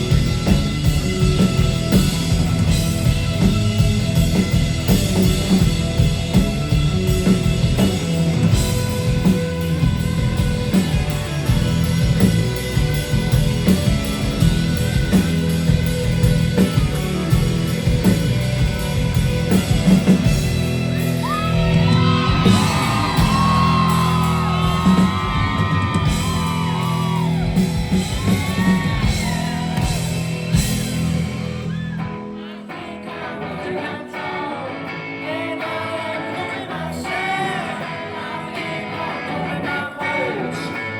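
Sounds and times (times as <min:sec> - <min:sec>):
rock band playing live: 0:00.0 - 0:40.9
person singing: 0:32.0 - 0:40.9.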